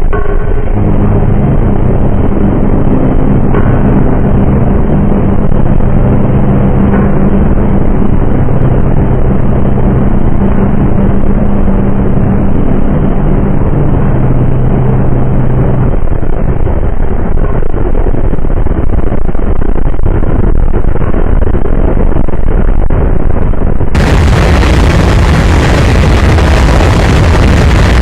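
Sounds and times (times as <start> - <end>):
diesel locomotive engine drone: 0.0 - 28.0
heavy rumble: 0.0 - 28.0.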